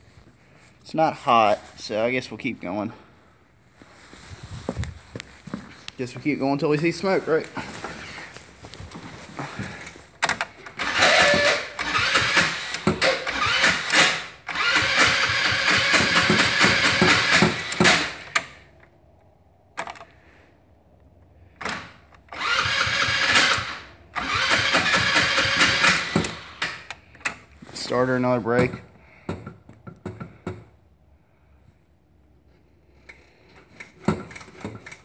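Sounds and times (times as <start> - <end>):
electric starter cranking engine: 10.2 - 18.7, 21.6 - 27.0.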